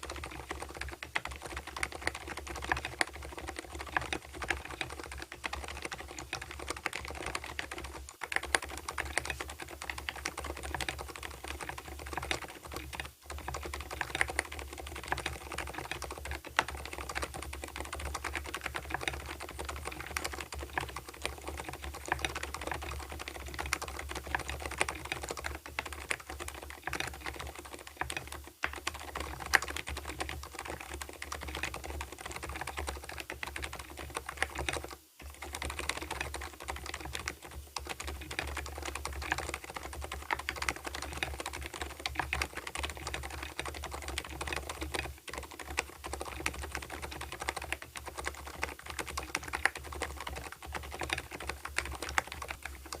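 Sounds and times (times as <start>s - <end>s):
fast typing on mechanical keyboard: 0.0s - 53.0s.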